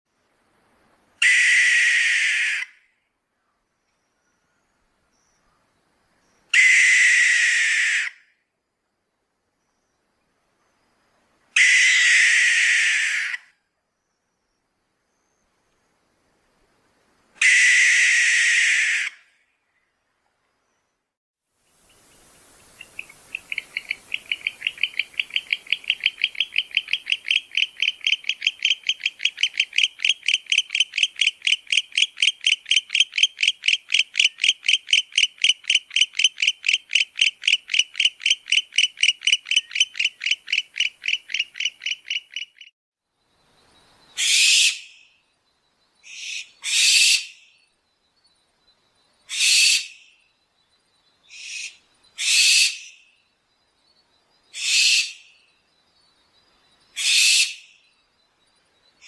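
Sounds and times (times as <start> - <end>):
owl rapid high-pitched toots: 1.2 - 2.8, 6.5 - 8.2, 11.6 - 13.5, 17.4 - 19.2, 22.8 - 42.7, 44.2 - 45.0, 46.0 - 47.4, 49.3 - 50.0, 51.3 - 53.0, 54.5 - 55.3, 57.0 - 57.7.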